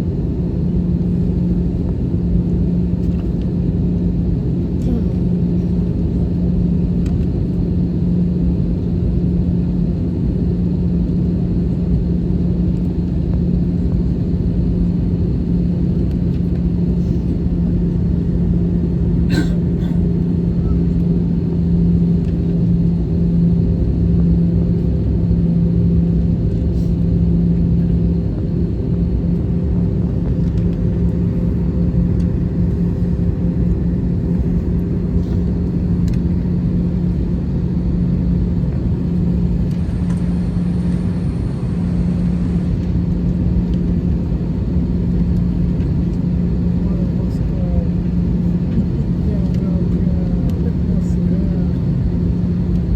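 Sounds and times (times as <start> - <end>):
airplane cabin engine rumble: 0.0 - 52.9.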